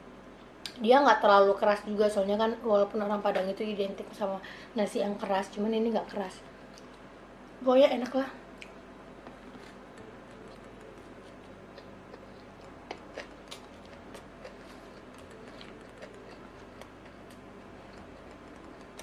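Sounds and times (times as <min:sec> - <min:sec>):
mouth clicks and chewing: 0:09.5 - 0:19.0.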